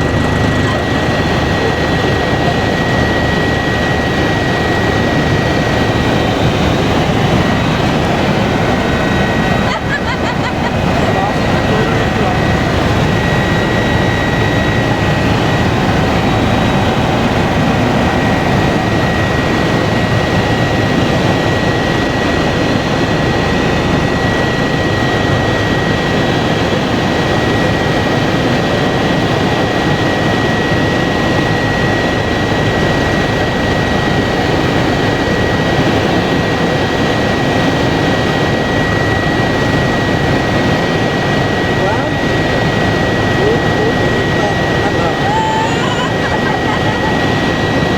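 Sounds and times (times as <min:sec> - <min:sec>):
high whine: 0:00.0 - 0:26.2
helicopter engine and rotor noise: 0:00.0 - 0:47.9.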